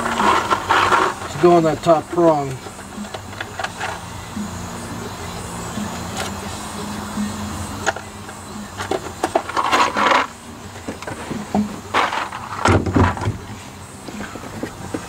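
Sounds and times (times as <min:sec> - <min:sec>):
small metal parts rattling: 0:00.0 - 0:04.0, 0:08.8 - 0:13.3.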